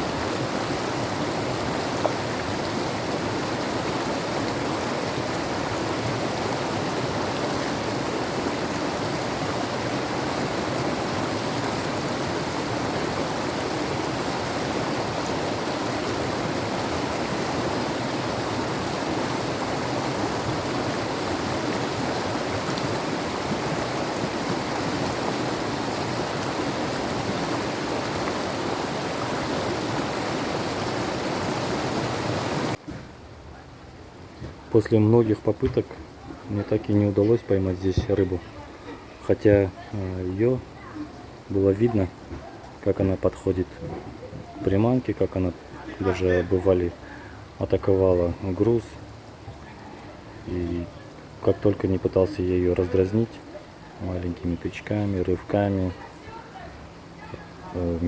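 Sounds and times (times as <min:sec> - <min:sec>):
river rushing: 0:00.0 - 0:32.8.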